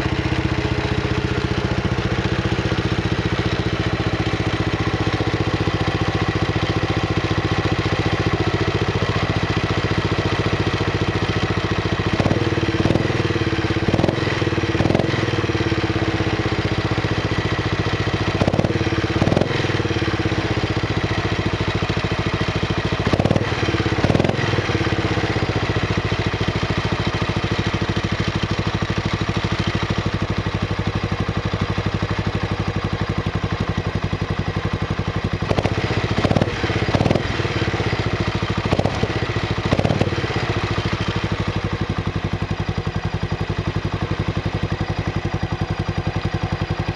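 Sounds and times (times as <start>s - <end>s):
motorcycle engine idling: 0.0s - 46.9s.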